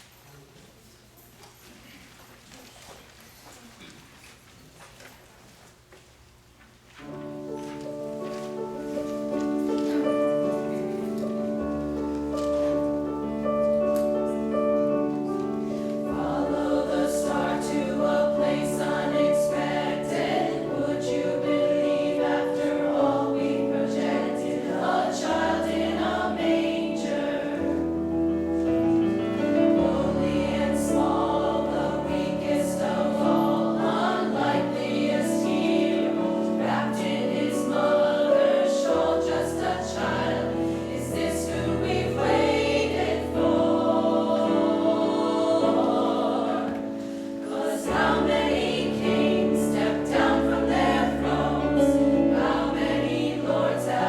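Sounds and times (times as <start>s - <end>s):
choir singing: 9.1s - 54.0s.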